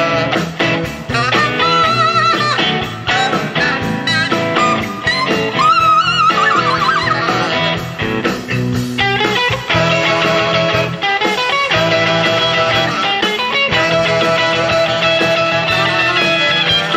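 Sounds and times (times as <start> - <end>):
band playing blues-rock: 0.0 - 16.9
guitar: 0.0 - 16.9
steady drum beat: 0.0 - 16.9
wavering melody line: 1.2 - 7.8.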